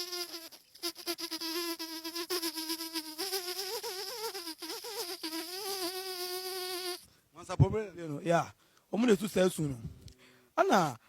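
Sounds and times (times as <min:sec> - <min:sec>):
man imitating buzzing insect: 0:00.0 - 0:07.0.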